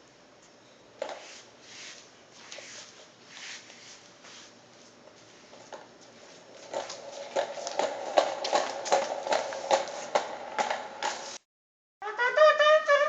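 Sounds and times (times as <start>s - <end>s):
steady rustling: 1.2s - 11.4s.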